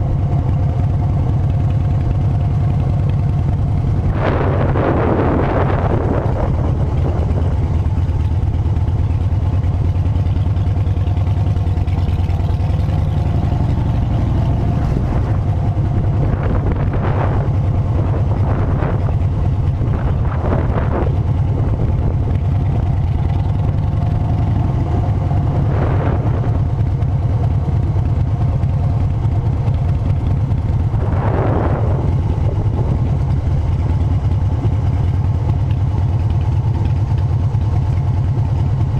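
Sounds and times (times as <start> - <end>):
motorcycle engine droning: 0.0 - 38.9
passing vehicle noise: 12.0 - 27.2.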